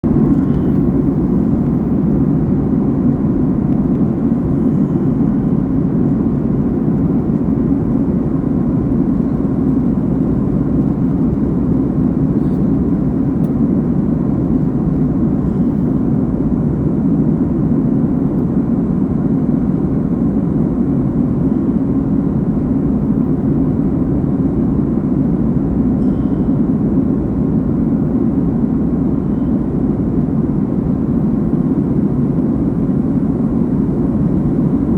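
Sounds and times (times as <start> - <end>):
airliner cabin noise: 0.0 - 34.9.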